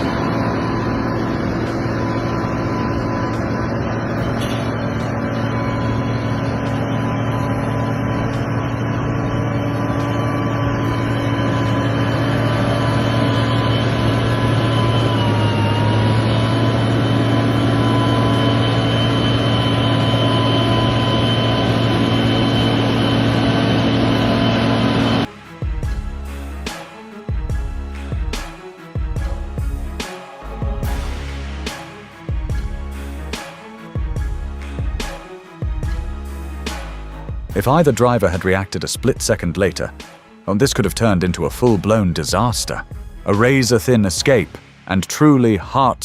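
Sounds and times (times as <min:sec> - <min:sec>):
thin whine: 0:00.0 - 0:26.8
heavy vehicle engine drone: 0:00.0 - 0:38.8.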